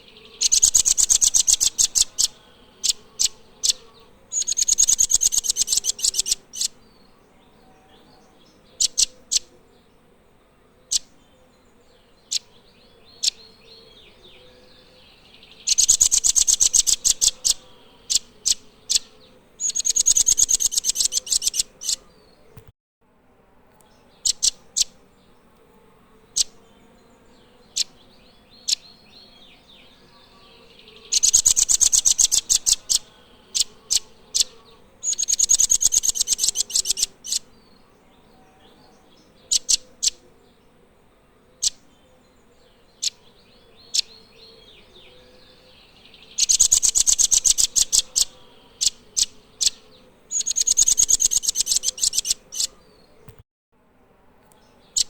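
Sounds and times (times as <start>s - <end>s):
nuthatch calling: 0.0s - 6.8s, 8.8s - 9.5s, 10.9s - 11.2s, 12.3s - 12.5s, 13.1s - 14.0s, 15.1s - 22.0s, 24.2s - 25.0s, 26.3s - 26.6s, 28.6s - 30.0s, 30.8s - 37.6s, 39.4s - 40.2s, 41.6s - 41.9s, 42.9s - 53.4s
nuthatch fast trills: 0.0s - 6.8s, 8.8s - 9.5s, 15.6s - 22.0s, 31.1s - 37.5s, 46.3s - 52.8s.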